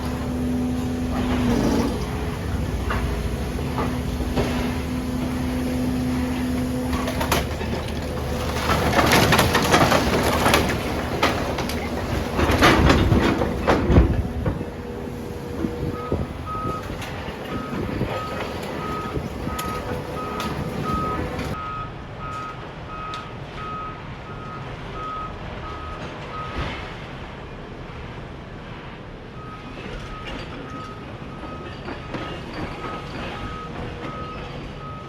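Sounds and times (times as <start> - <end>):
demolition rubble crashing: 0.0 - 21.6, 29.7 - 35.0
low machinery rumble: 0.0 - 21.6
reversing alarm beeps: 15.8 - 26.6, 29.4 - 35.0.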